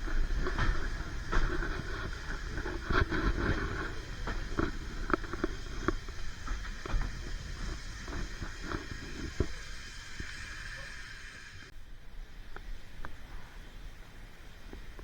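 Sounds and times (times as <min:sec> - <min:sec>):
wheels clanking on track: 0:00.0 - 0:11.7
train rumbling: 0:00.0 - 0:15.0.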